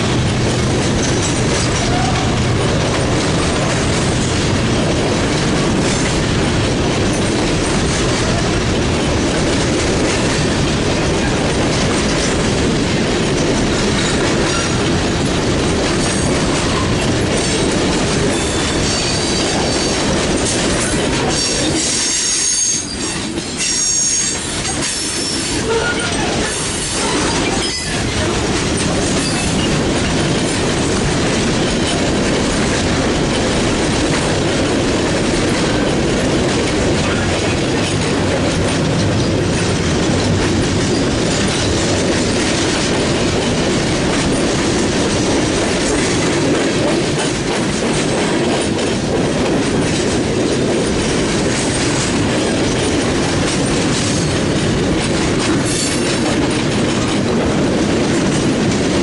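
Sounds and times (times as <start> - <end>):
freight train cars rumbling: 0.0 - 59.0
high-pitched wheel squeal: 21.4 - 24.4.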